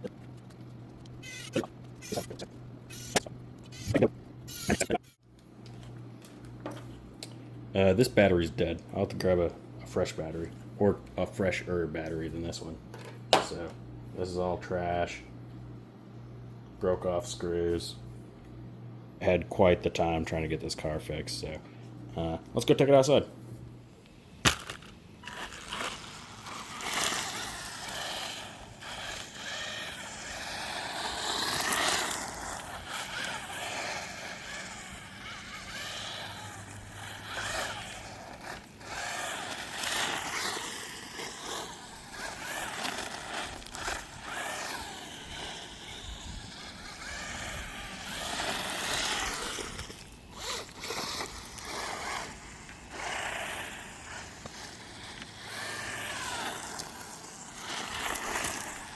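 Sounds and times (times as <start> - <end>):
tyre and ground noise: 0.0 - 7.0, 23.5 - 58.9
rc car motor whining: 0.4 - 5.2, 24.4 - 58.9.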